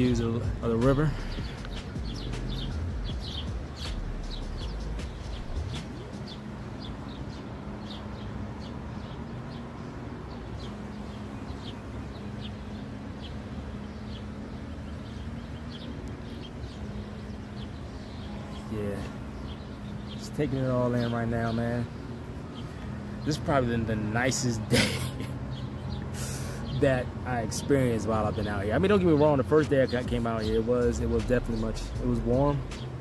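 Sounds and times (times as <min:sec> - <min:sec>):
steady low rumble: 0:00.0 - 0:06.8
small birds chirping: 0:00.0 - 0:33.0.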